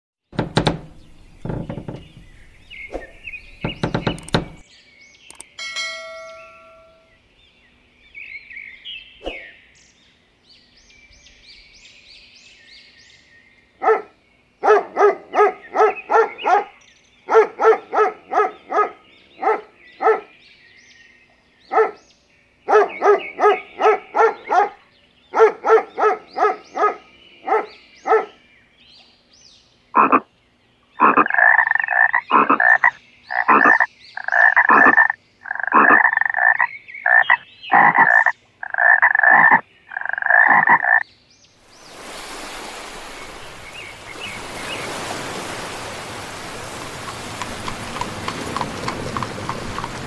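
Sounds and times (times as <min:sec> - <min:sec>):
faint bird chirping: 0:00.9 - 0:45.3
dog barking: 0:13.8 - 0:20.3, 0:21.7 - 0:22.0, 0:22.7 - 0:28.4.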